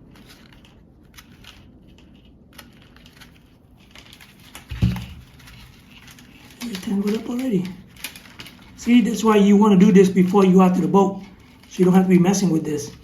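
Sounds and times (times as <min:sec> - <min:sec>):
rustles and clicks of fishing line: 0:00.0 - 0:09.2
dull thump: 0:04.7 - 0:05.3.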